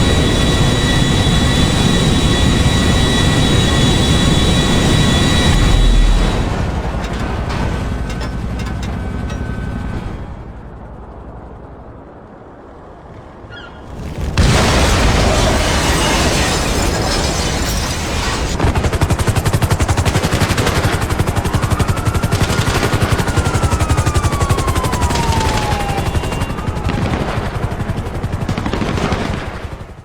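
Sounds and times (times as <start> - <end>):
loud explosion: 14.0 - 18.1
thin whistling tone: 23.6 - 26.9.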